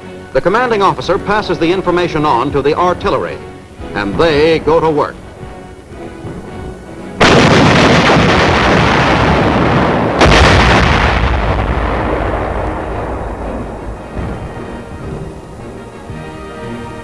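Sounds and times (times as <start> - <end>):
artillery booms with rumble: 3.8 - 16.6.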